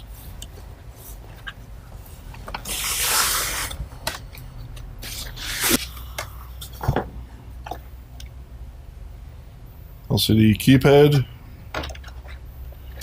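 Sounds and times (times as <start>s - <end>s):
parts clicking and knocking: 11.7s - 13.0s.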